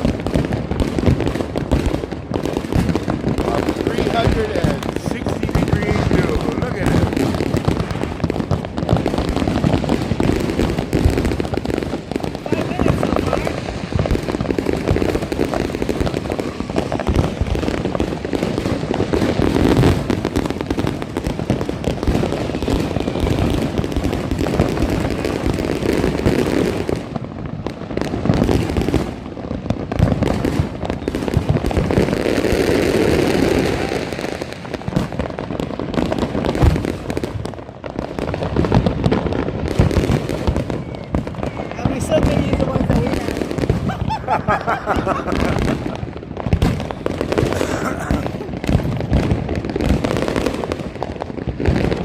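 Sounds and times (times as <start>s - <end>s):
fireworks and firecrackers crackling: 0.0s - 52.0s.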